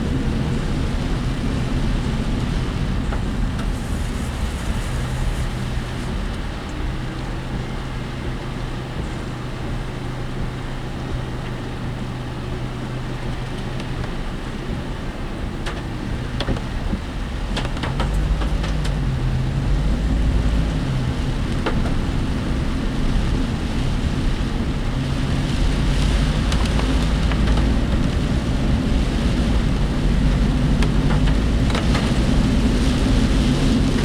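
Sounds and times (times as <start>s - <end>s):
road rumble: 0.0s - 34.0s
vehicle engine hum: 0.0s - 34.0s
vehicle body knocks and rattles: 13.3s - 19.3s.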